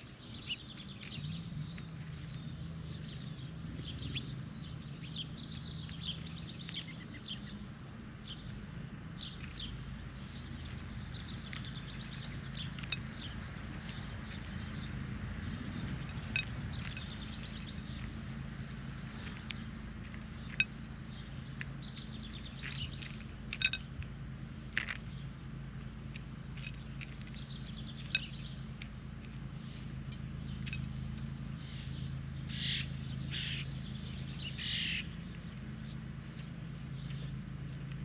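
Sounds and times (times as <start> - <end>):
birds chirping and calling: 0.0 - 38.0.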